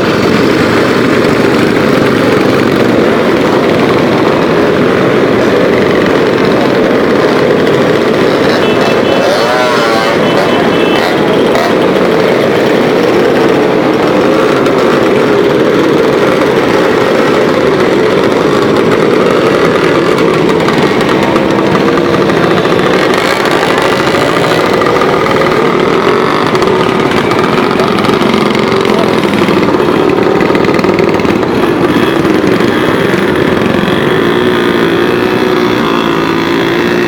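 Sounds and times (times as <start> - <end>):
motorcycle engines running: 0.0 - 37.0.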